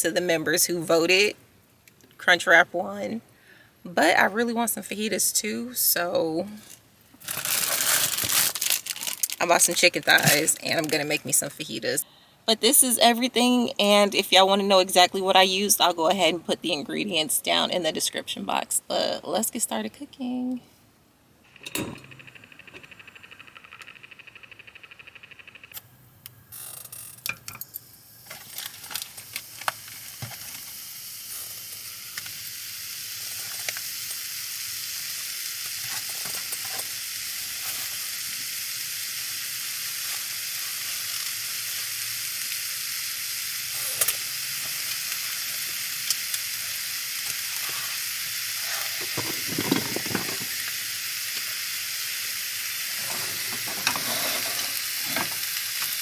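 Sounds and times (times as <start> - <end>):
meat sizzling in a skillet: 28.6 - 56.0
utensil clinking and scraping pan: 48.9 - 50.6.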